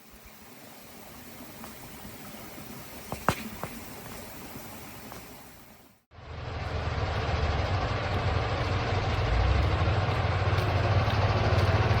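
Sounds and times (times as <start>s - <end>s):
engine running steadily: 6.1s - 12.0s.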